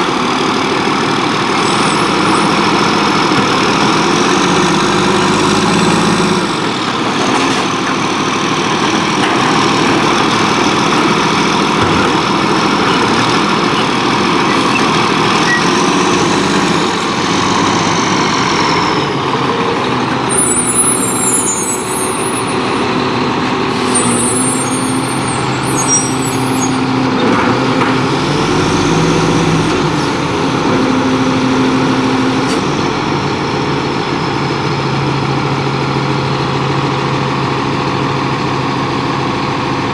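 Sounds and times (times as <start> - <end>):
garbage truck engine and hydraulics: 0.0 - 39.9
short high squeals: 20.3 - 22.9, 23.8 - 26.9.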